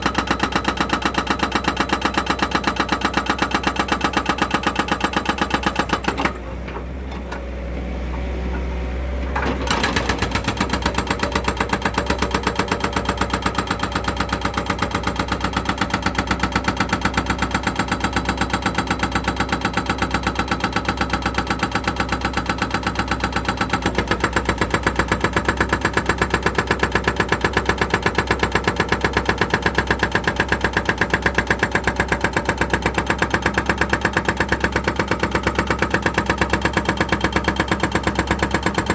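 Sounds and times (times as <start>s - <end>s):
engine running with regular beat: 9.7s - 38.9s.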